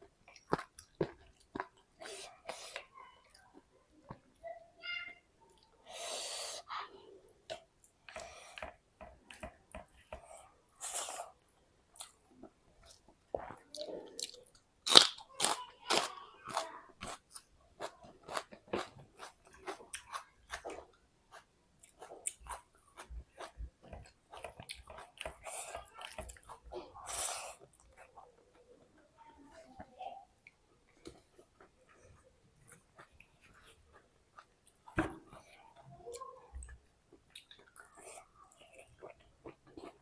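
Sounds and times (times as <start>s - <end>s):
person chewing and crunching: 0.0s - 3.5s, 9.3s - 28.1s, 32.5s - 35.5s, 37.2s - 40.0s.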